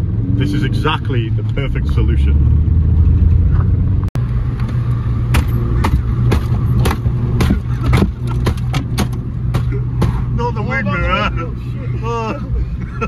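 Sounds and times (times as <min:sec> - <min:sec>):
car engine droning: 0:00.0 - 0:13.0
sharp engine knocks: 0:04.6 - 0:10.3.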